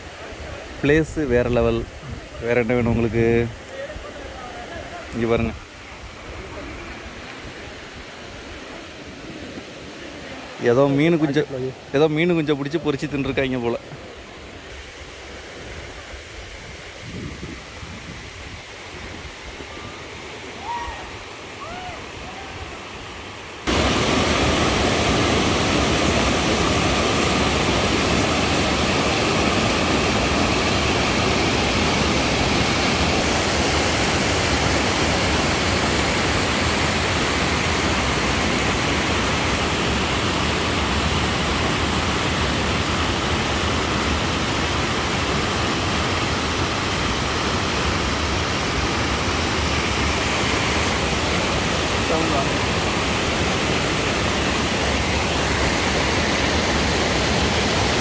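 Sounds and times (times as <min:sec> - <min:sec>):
waterfall roaring: 0:08.8 - 0:16.0, 0:19.6 - 0:58.0.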